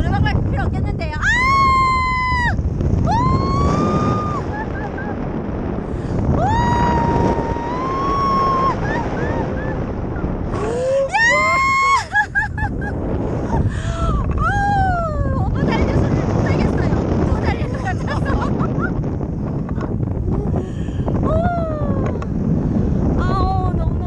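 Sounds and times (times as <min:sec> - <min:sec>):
wind rushing on microphone: 0:00.0 - 0:24.0
woman yelling: 0:11.1 - 0:12.1.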